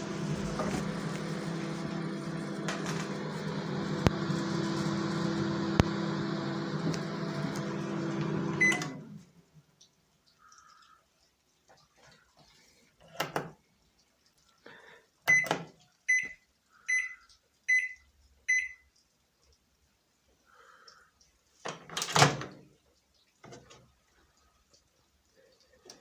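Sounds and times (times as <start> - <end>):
microwave keypad beeps: 8.6 - 9.0, 15.3 - 18.8.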